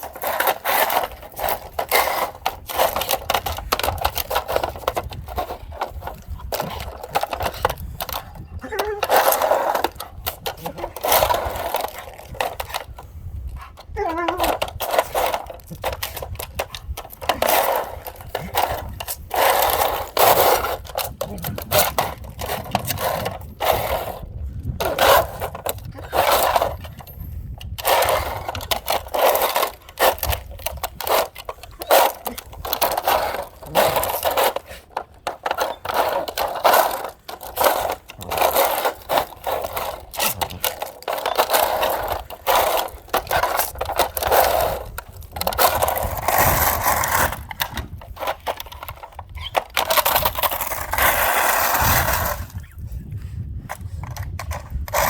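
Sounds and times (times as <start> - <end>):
cat toy scraping and rattling: 0.0 - 52.9.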